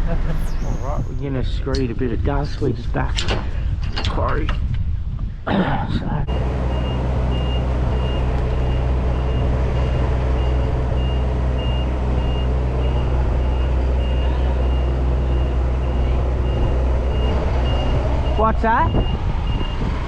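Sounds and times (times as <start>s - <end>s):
reversing alarm beeping: 6.3s - 19.9s
vehicle engine running: 6.3s - 20.0s.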